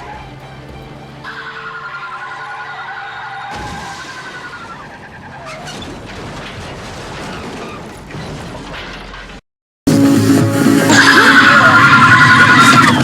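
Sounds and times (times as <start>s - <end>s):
crashes and shattering debris: 3.5s - 9.4s.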